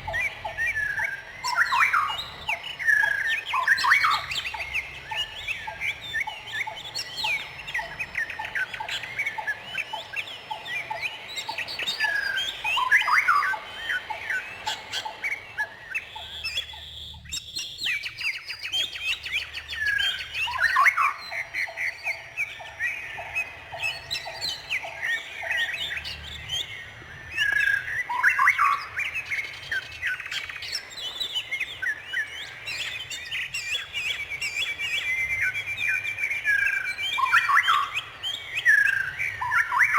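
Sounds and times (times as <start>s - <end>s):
birds chirping and squawking: 0.0s - 39.9s
rapid low bird trill: 0.0s - 39.9s.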